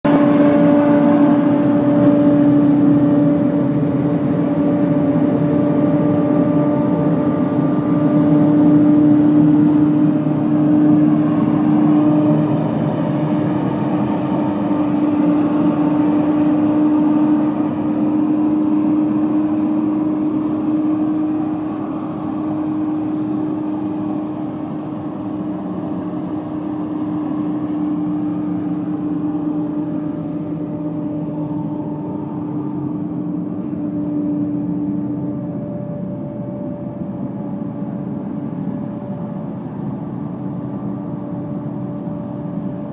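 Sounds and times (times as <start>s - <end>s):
truck machine hum: 0.0s - 42.9s.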